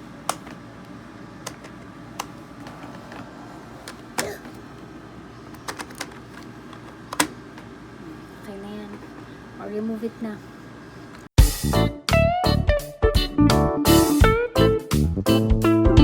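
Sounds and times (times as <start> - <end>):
steady low hum: 0.0 - 11.3.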